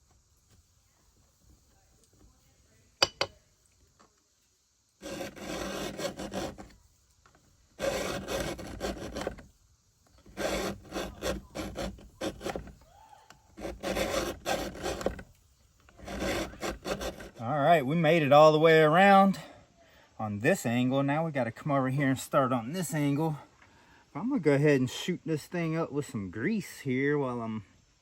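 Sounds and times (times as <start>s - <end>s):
file rasping on chainsaw chain: 5.0s - 6.8s, 7.8s - 9.5s, 10.2s - 12.8s, 13.6s - 15.3s, 15.9s - 17.5s.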